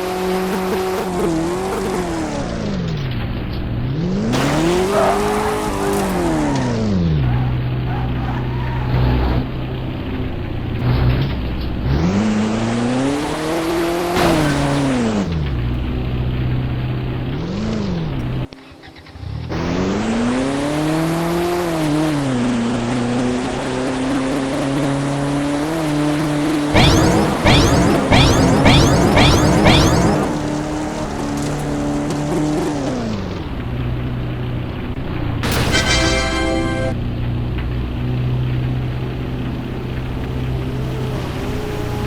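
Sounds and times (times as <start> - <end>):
car engine revving: 0.0 - 36.9.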